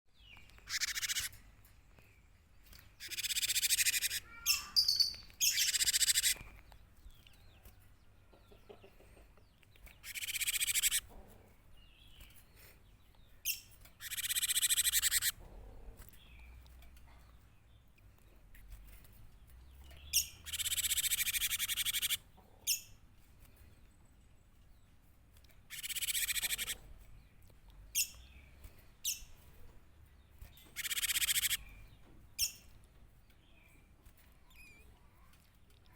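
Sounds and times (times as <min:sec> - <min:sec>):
faint bird chirps: 0:00.1 - 0:09.0, 0:09.6 - 0:11.1, 0:12.0 - 0:15.5, 0:19.5 - 0:23.0, 0:25.7 - 0:29.6, 0:30.3 - 0:32.8, 0:33.4 - 0:35.9
bird calling in rasping bursts: 0:00.6 - 0:01.4, 0:03.0 - 0:06.4, 0:10.0 - 0:11.0, 0:14.0 - 0:15.4, 0:20.2 - 0:22.2, 0:25.7 - 0:26.8, 0:30.7 - 0:31.8.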